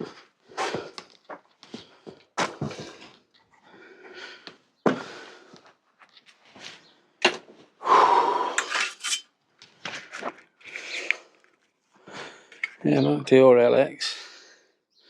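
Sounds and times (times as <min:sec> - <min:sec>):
scraping clatter: 0:08.6 - 0:09.2
tools clinking and knocking: 0:08.6 - 0:09.3, 0:12.5 - 0:12.9.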